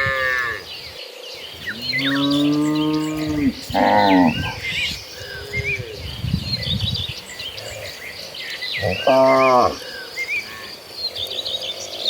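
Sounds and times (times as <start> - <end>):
small birds chirping: 0.0 - 12.0
cattle mooing: 1.7 - 4.6, 8.8 - 9.8.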